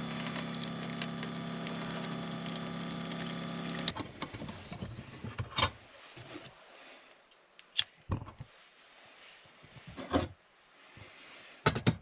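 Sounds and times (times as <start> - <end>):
mechanical hum: 0.0 - 4.8.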